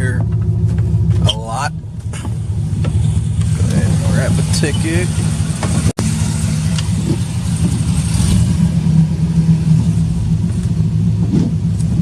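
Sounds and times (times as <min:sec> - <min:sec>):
pickup truck engine running: 0:00.0 - 0:12.0.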